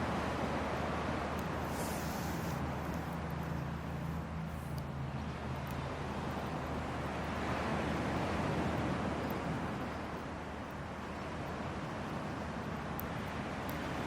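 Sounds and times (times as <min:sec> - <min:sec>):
fire crackles: 0:00.4 - 0:14.0
campfire flames rushing: 0:01.3 - 0:04.8.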